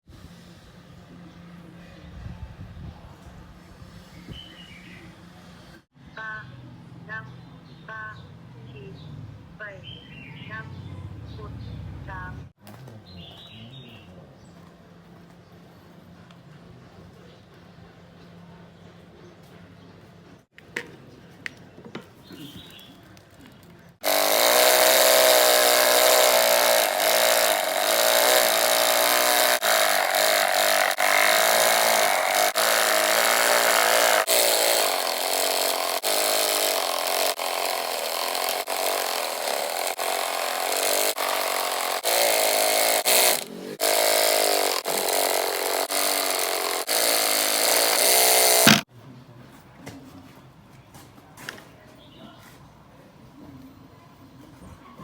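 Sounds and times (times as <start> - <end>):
electric jigsaw sawing wood: 24.0 - 48.9.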